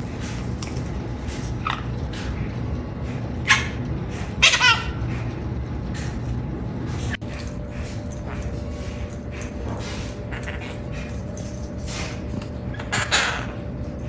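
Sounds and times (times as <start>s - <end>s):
low background hum: 0.0s - 14.0s
parrot laugh-like calls: 4.4s - 5.0s, 12.7s - 13.6s.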